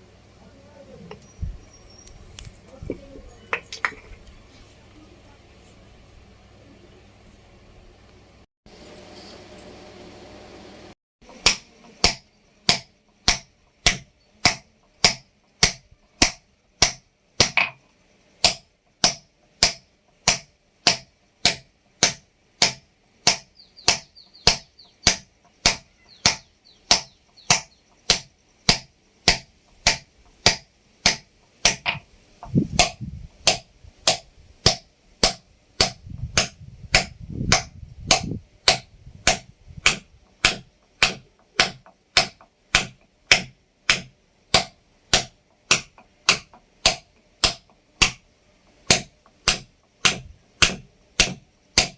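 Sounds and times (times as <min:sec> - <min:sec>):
hammer striking steel chisel: 0:11.3 - 0:17.8, 0:18.4 - 0:51.9.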